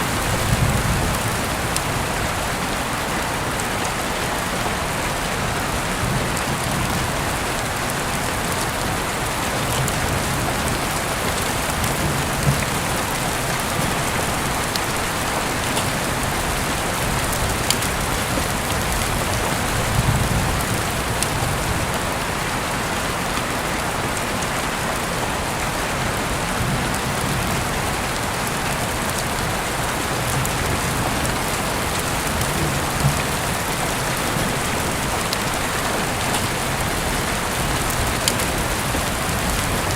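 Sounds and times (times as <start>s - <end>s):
heavy rain hissing: 0.0s - 39.9s
rain drop clicks: 6.3s - 22.3s, 28.1s - 39.9s.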